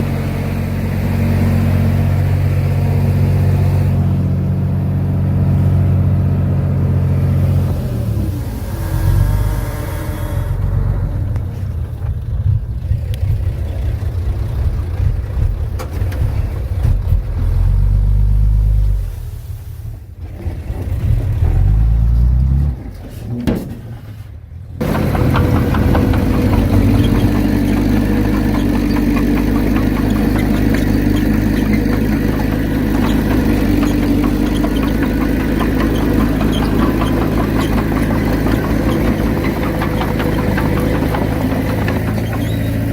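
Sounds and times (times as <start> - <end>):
heavy diesel machinery rumbling: 0.0 - 19.1, 20.0 - 42.9.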